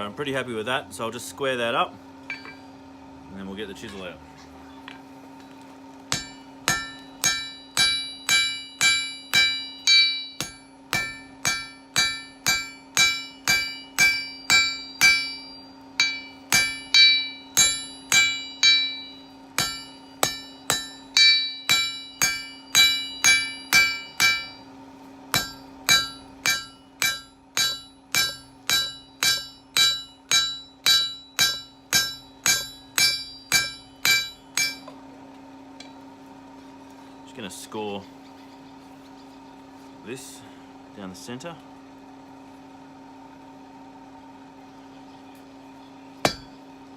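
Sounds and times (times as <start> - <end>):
hammer striking steel on anvil: 2.3 - 2.7, 6.1 - 24.7, 25.3 - 35.0, 46.2 - 46.6.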